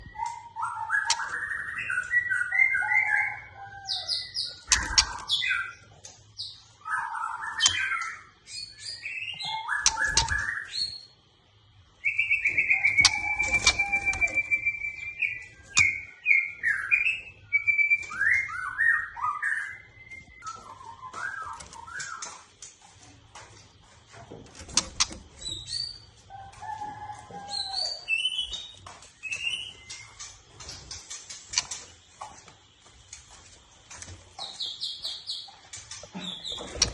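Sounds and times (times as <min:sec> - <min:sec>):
bird singing whistled phrases: 0:12.1 - 0:22.3.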